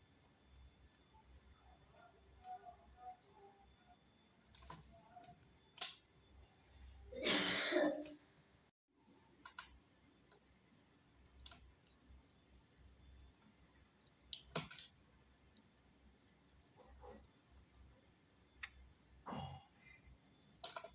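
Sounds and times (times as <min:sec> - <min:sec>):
crickets trilling: 0:00.0 - 0:20.9
faint clicks: 0:09.4 - 0:10.4.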